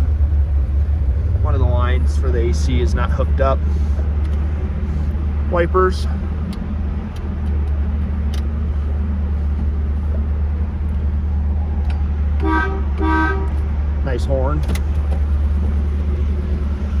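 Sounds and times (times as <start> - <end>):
car engine idling: 0.0 - 17.0
car horn honks: 12.4 - 13.7.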